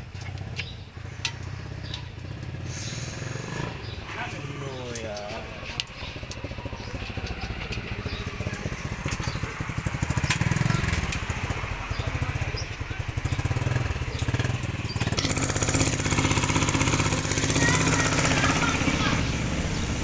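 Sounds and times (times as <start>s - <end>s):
truck engine running: 0.0s - 20.0s
hiss: 2.6s - 3.8s.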